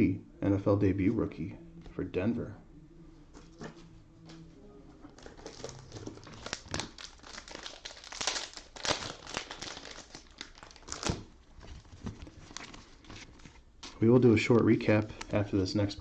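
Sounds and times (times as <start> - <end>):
cellophane wrapper crinkling: 5.1 - 15.5.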